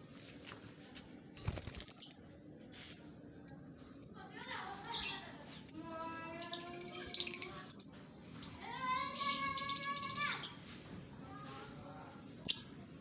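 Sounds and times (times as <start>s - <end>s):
lovebirds chirping: 1.4s - 2.3s.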